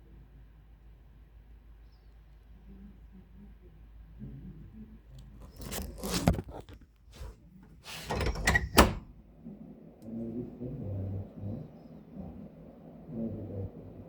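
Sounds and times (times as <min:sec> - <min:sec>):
clattering and rustling knocks: 0:05.6 - 0:09.1.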